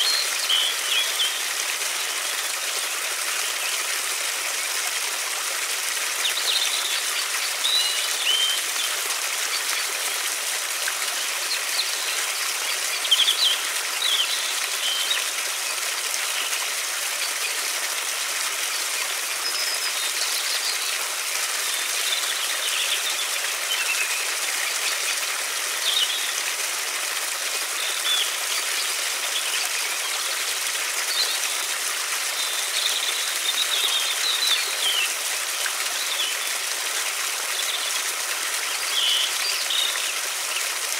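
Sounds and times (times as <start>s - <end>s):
river water flowing: 0.0s - 40.9s
small birds chirping: 6.1s - 10.0s, 10.9s - 17.7s, 18.6s - 26.4s, 32.3s - 36.6s, 38.6s - 40.7s.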